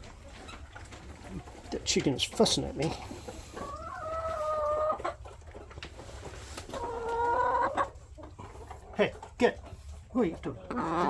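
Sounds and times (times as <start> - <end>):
chicken calling: 2.9 - 9.0, 9.7 - 11.0.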